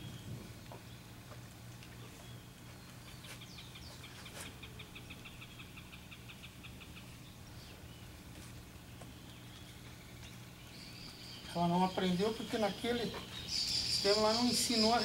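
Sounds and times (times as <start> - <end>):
bird trilling: 9.4 - 15.0.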